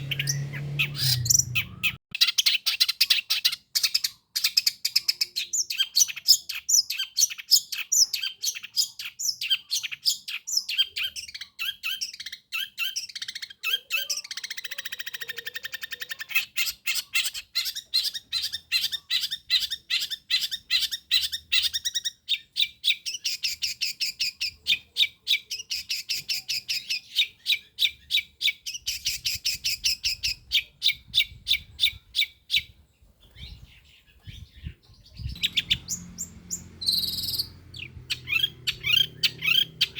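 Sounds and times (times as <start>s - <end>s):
buzzy bird trill: 0.0s - 2.7s, 34.6s - 39.9s
bird singing rapid sharp notes: 0.0s - 39.9s.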